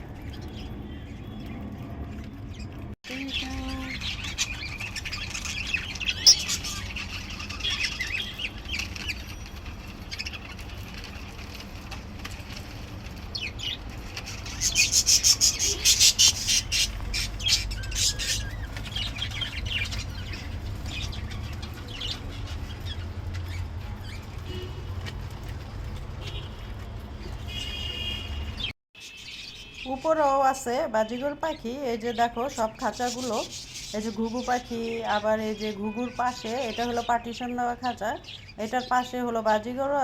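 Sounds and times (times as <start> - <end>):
budgerigars chirping and chattering: 3.3 - 11.0, 13.4 - 23.6.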